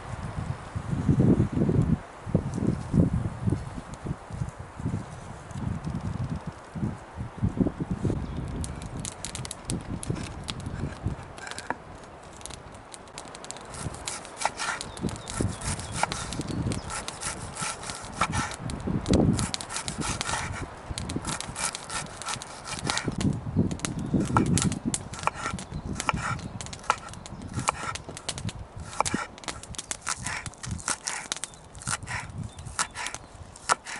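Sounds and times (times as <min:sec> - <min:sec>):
scraping and rubbing: 0:13.6 - 0:18.6.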